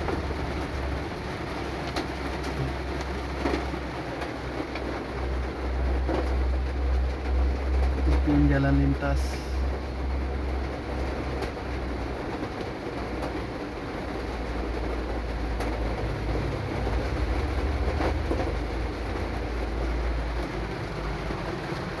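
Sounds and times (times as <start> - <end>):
truck rumbling on road: 0.0 - 22.0.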